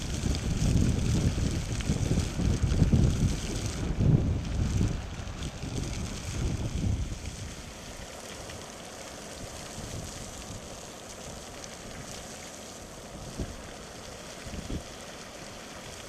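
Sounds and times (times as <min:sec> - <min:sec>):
wind buffeting microphone: 0:00.0 - 0:07.6, 0:14.4 - 0:14.9
water jets spraying and splashing: 0:00.0 - 0:16.0.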